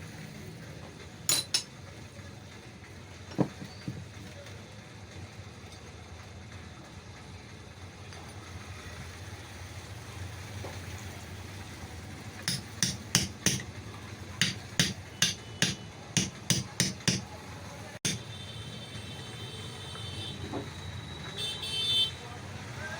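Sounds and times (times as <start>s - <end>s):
hammer tapping on metal: 1.3s - 1.7s, 12.4s - 13.8s, 14.4s - 17.4s, 18.0s - 18.3s.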